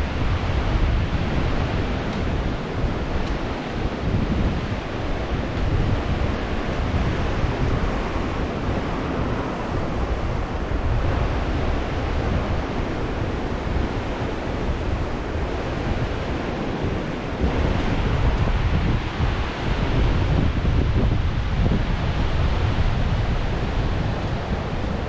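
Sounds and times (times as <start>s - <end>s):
surf washing onto beach: 0.0s - 25.0s
wind buffeting microphone: 0.0s - 25.0s.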